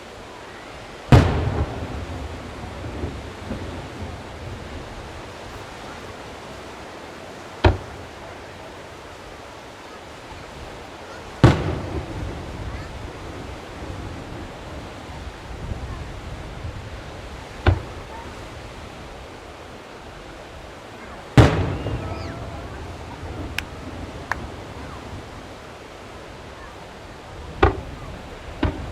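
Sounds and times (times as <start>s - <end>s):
background hiss: 0.0s - 28.9s
firework shells booming: 1.1s - 4.4s, 7.6s - 8.2s, 11.4s - 12.6s, 21.4s - 25.1s.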